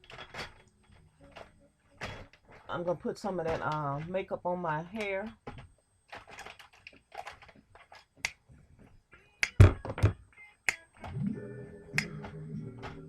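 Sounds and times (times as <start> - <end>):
objects clicking and tapping: 0.0 - 4.2, 5.0 - 11.2
guitar music with finger snaps: 9.4 - 9.6, 10.4 - 13.0.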